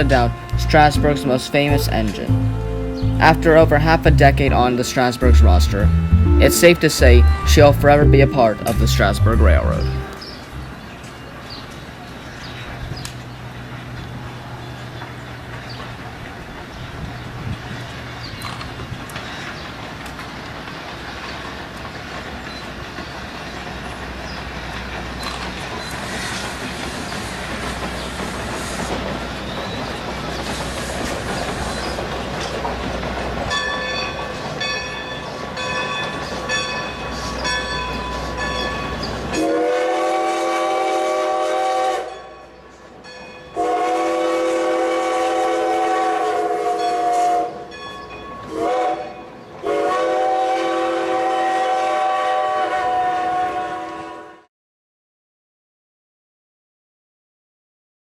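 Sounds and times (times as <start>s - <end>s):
train rumbling: 0.0s - 54.2s
locomotive whistle blasts: 39.3s - 42.2s, 43.6s - 47.7s, 48.5s - 54.5s.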